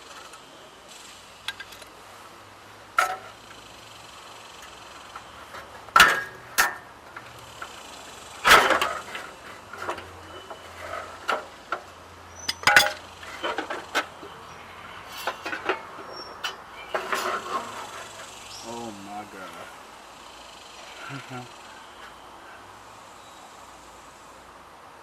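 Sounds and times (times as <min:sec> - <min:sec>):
tools clanking on exhaust pipe: 0:01.4 - 0:02.0, 0:02.9 - 0:03.6, 0:04.5 - 0:19.6.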